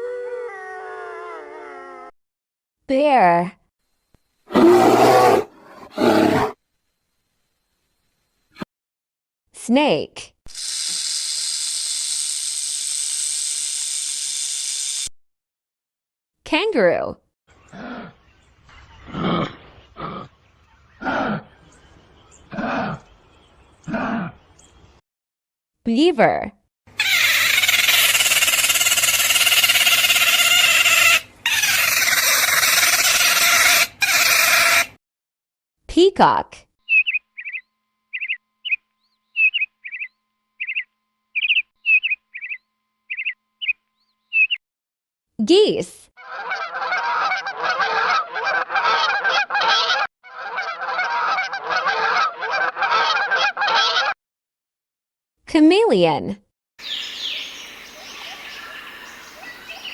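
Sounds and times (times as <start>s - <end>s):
beaver squealing: 27.0s - 34.9s
geese honking: 46.2s - 54.2s.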